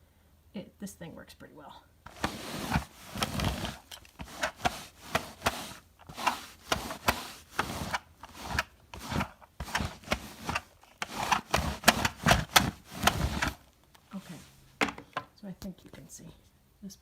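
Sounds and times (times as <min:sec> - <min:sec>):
pet hair remover rasping: 0:02.1 - 0:13.6.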